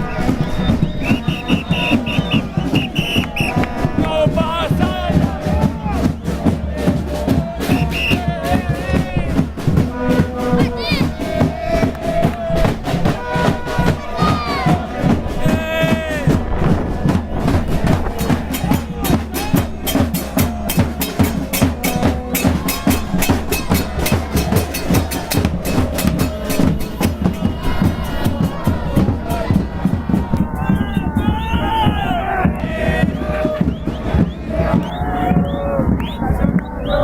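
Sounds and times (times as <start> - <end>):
bass drums beating: 0.0 - 37.0
voices: 0.0 - 37.0.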